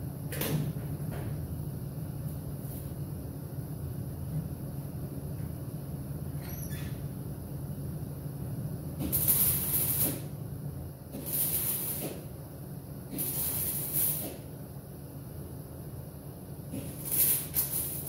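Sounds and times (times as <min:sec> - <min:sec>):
steady low hum: 0:00.0 - 0:18.0
welding hissing bursts: 0:09.0 - 0:10.3, 0:11.2 - 0:12.2, 0:13.1 - 0:14.4, 0:16.8 - 0:18.0.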